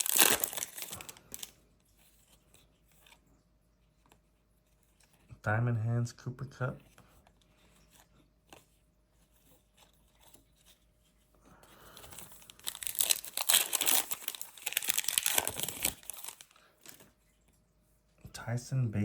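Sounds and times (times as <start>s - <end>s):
foil wrapper tearing and crinkling: 0.0s - 1.5s, 12.1s - 17.0s.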